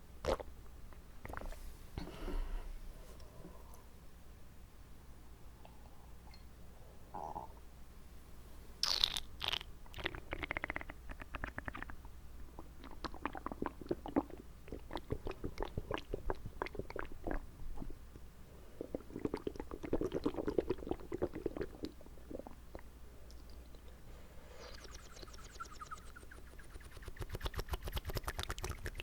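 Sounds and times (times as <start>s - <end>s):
wet mouth clicks and pops: 8.8s - 12.0s, 26.8s - 29.0s.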